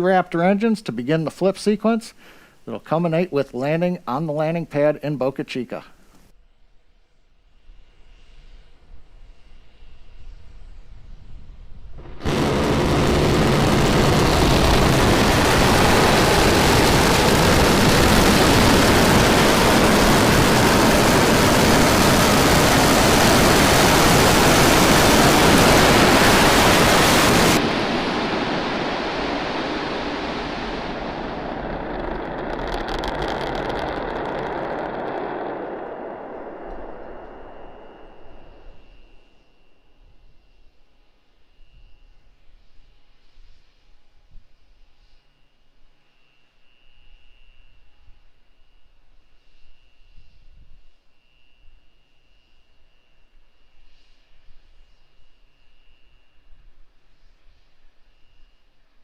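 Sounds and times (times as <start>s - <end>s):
low rumble: 11.4s - 39.2s
rocket engines roaring: 12.0s - 39.3s.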